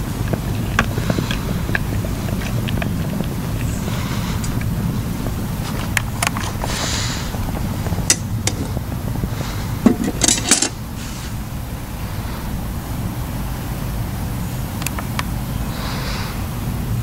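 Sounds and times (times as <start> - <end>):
wind rumble on microphone: 0.0 - 17.0
metal cookware clattering: 9.8 - 10.8.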